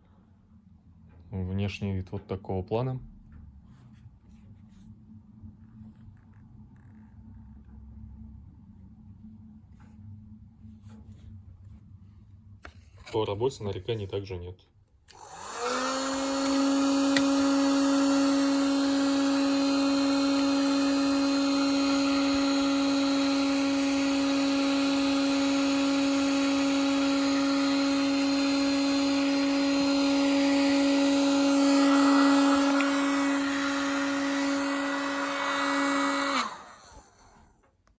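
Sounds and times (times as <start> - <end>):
hair dryer running: 15.1 - 37.7
hair dryer winding down: 15.1 - 37.8.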